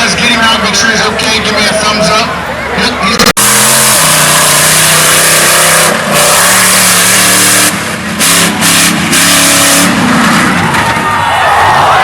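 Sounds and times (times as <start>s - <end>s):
truck engine revving hard: 3.1s - 12.0s.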